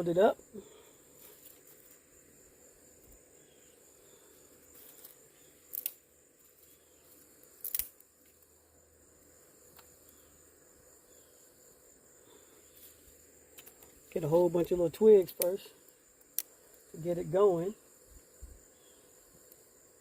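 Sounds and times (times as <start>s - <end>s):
insects droning: 0.0s - 20.0s
twigs clicking: 4.7s - 8.5s, 12.8s - 14.1s, 15.2s - 16.9s.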